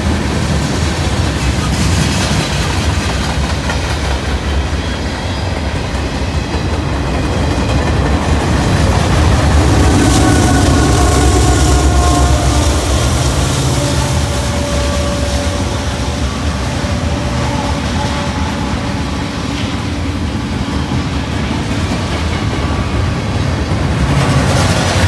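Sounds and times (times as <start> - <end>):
clickety-clack of rail joints: 0.0 - 10.8, 17.8 - 25.0
train wheels rumbling on rail: 0.0 - 25.0.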